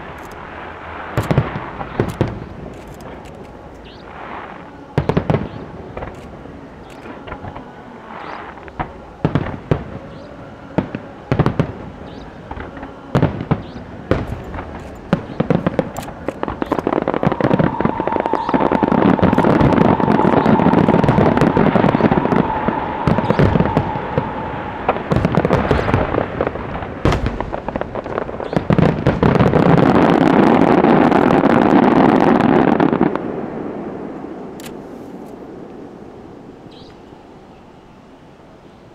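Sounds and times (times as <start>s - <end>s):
firework whistle: 0.0s - 33.2s
fireworks bangs and crackling: 0.0s - 37.0s.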